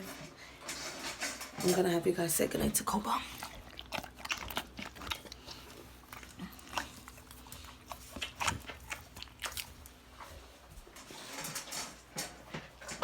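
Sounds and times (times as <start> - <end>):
dog snuffling and mouth sounds: 3.2 - 12.0.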